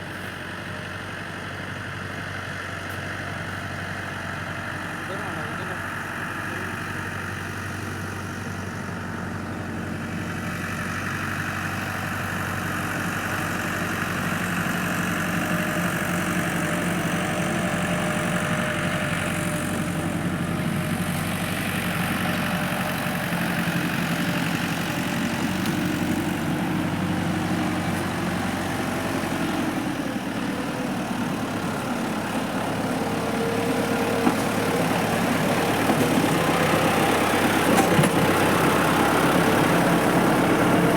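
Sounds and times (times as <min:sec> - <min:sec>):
tractor engine idling: 0:00.0 - 0:40.9.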